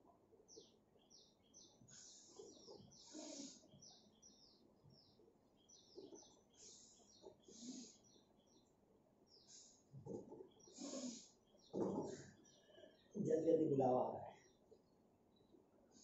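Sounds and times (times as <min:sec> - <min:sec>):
faint bird chirping: 0:00.0 - 0:16.0
soft hissing puffs: 0:01.9 - 0:03.7, 0:06.6 - 0:08.0, 0:09.3 - 0:10.0, 0:10.7 - 0:11.4.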